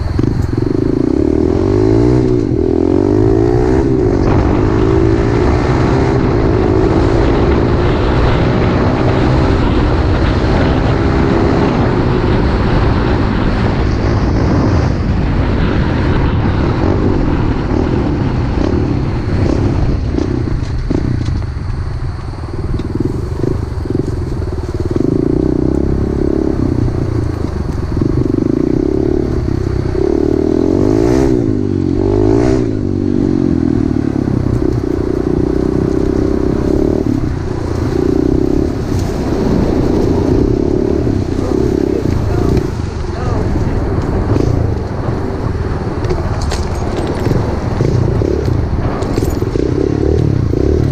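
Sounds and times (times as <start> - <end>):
small motorcycle engine revving: 0.0 - 21.4, 22.5 - 50.9.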